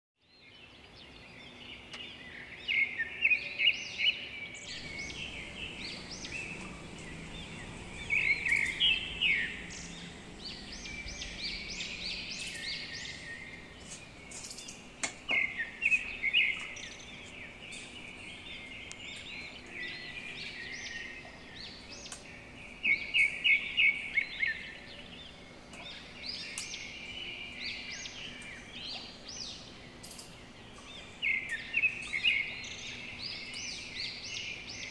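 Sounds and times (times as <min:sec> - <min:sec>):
small birds chirping: 0:00.2 - 0:34.9
steady background hiss: 0:00.4 - 0:34.9.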